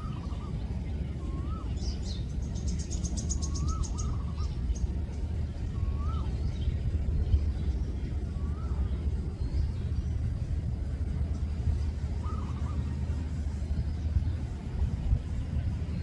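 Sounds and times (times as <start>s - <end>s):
bird whistling call: 0.0s - 4.9s, 5.7s - 6.6s, 12.2s - 13.0s
low rumble: 0.0s - 16.0s.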